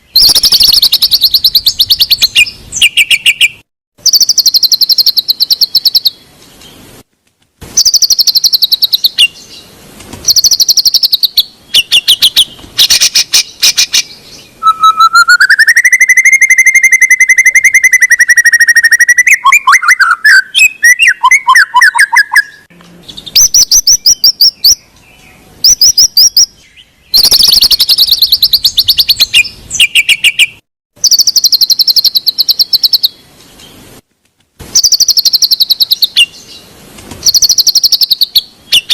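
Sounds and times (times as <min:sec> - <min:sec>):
bird song with trills and chatter: 0:00.0 - 0:06.8, 0:07.8 - 0:33.8, 0:34.8 - 0:38.9
long rising whistle: 0:14.6 - 0:20.2.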